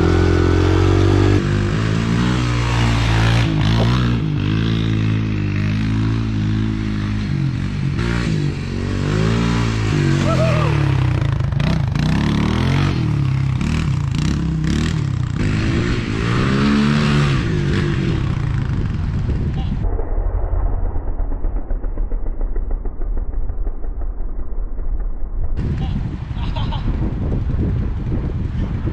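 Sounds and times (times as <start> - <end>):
vehicle engine revving: 0.0 - 19.6.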